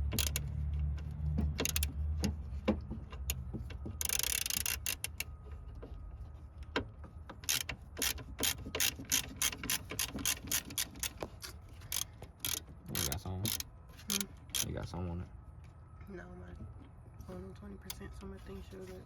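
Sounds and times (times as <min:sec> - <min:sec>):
hand ratchet clicking: 0:00.0 - 0:00.5, 0:01.5 - 0:01.9, 0:04.0 - 0:05.2, 0:07.4 - 0:14.7.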